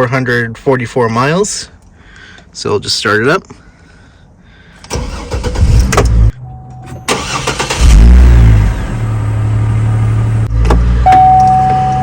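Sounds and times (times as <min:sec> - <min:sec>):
car engine starting and idling: 0:04.8 - 0:12.0.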